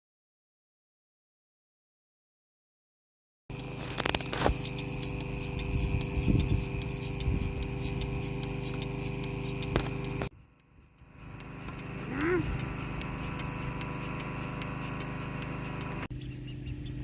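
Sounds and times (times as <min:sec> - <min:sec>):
sharp ticks: 0:03.5 - 0:16.1
mechanical hum: 0:03.5 - 0:17.0.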